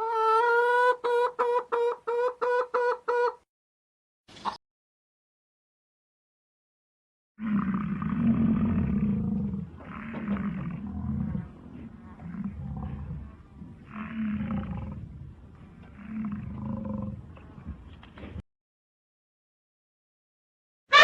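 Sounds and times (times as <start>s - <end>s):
big cat roaring: 7.4s - 17.3s.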